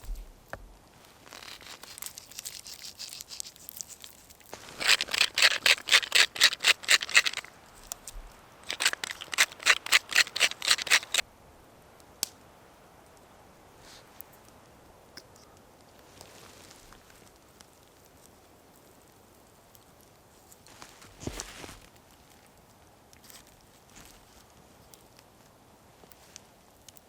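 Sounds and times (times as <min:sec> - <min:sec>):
hand tool scraping wood: 0:01.3 - 0:07.5, 0:08.6 - 0:11.2.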